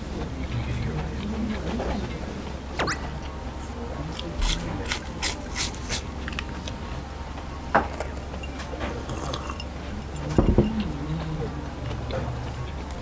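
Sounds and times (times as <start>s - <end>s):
low steady hum: 0.0s - 13.0s
crunching and chewing: 4.1s - 6.8s, 8.9s - 9.6s.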